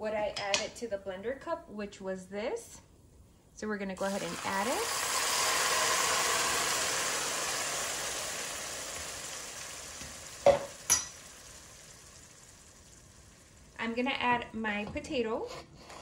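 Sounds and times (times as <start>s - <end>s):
liquid sizzling in hot oil: 4.0s - 13.8s.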